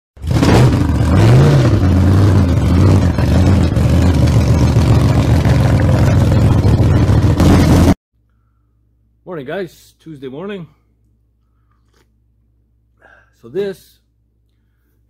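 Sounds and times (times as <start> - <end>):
vehicle engine idling: 0.8 - 8.0.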